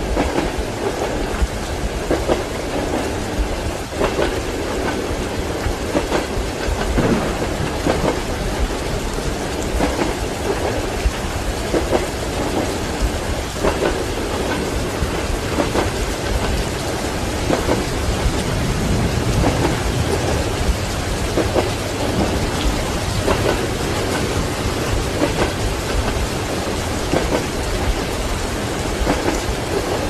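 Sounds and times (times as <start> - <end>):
steady rain: 0.0 - 30.0
train wheels knocking over rail joints: 3.9 - 16.8.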